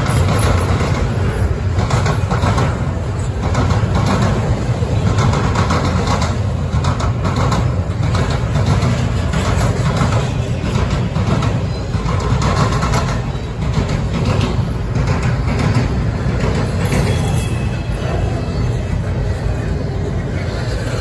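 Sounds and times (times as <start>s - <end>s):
freight wheels rumbling on rail: 0.0s - 21.0s.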